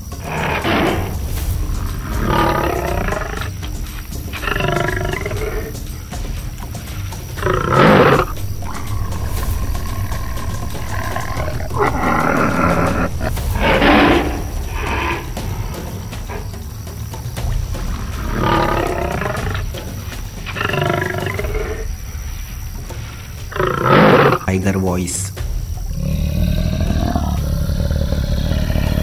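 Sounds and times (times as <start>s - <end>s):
tiger roaring and growling: 0.0s - 24.5s, 25.7s - 29.0s
background music: 0.0s - 29.0s.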